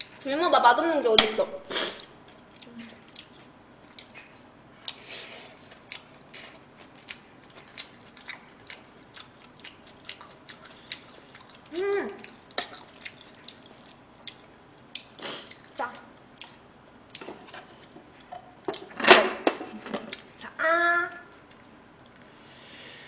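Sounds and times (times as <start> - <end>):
wet chewing mouth clicks: 2.4 - 17.3.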